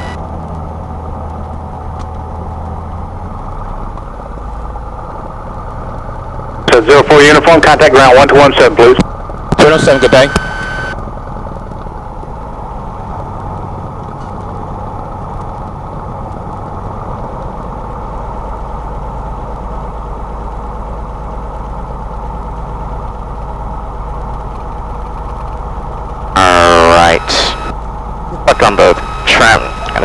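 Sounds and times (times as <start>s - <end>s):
piston engine and propeller idling: 0.0s - 30.0s
loud voice: 26.4s - 27.7s.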